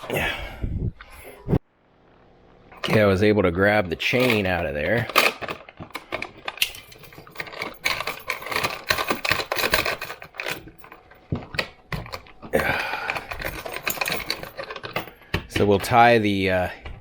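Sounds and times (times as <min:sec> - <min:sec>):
metal chain jingling: 0:06.5 - 0:11.1, 0:12.8 - 0:15.3.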